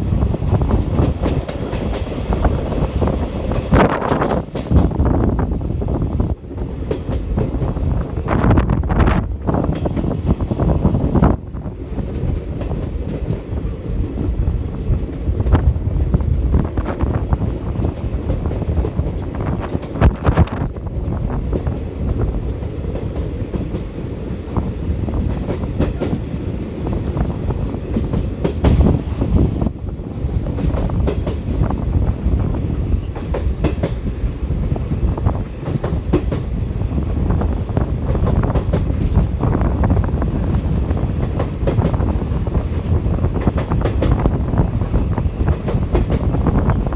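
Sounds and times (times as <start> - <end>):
train rumbling: 0.0 - 46.9.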